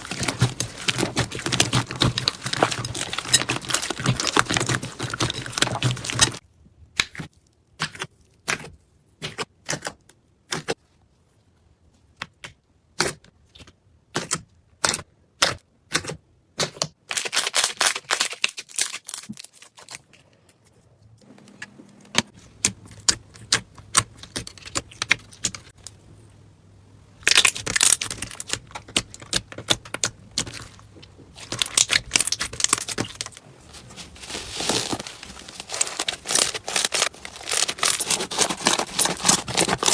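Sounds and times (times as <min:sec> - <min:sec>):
crunchy slime crackling: 0:00.0 - 0:06.4, 0:27.1 - 0:39.9.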